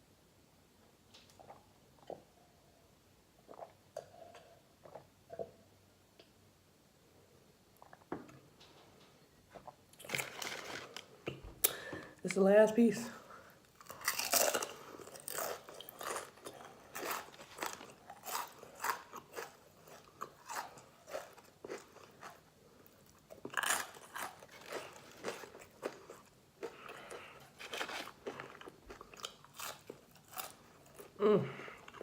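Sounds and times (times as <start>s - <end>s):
crunchy fried chicken chewing: 13.7s - 31.2s.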